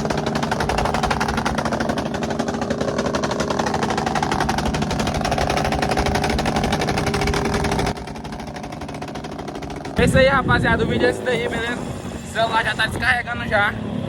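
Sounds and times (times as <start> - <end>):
motorcycle engine putter: 0.0 - 10.4.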